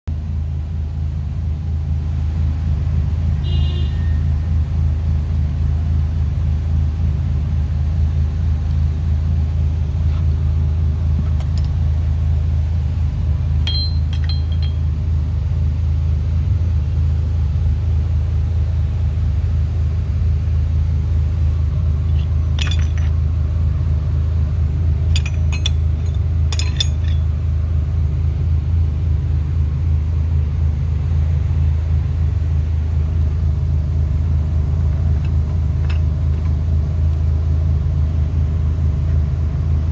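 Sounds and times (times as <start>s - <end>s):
car engine running: 0.0s - 39.9s
metallic clinks: 13.6s - 15.0s, 22.1s - 23.2s, 25.1s - 27.3s.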